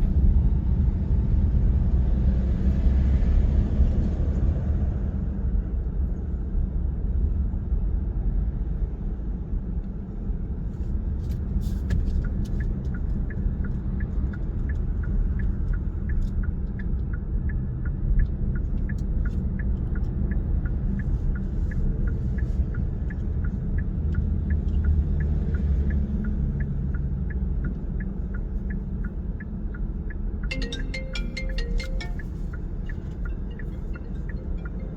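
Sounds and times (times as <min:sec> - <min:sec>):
car engine and tyres rumbling: 0:00.0 - 0:34.9
regular ticking: 0:30.5 - 0:34.9.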